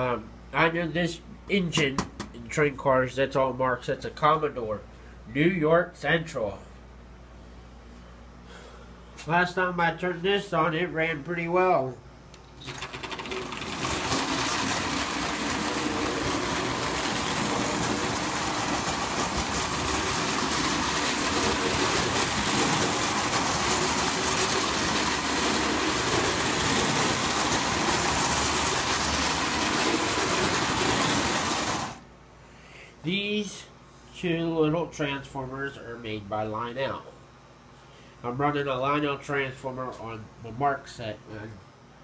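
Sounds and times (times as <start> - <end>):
electric toy train whirring and rattling: 12.7 - 32.0.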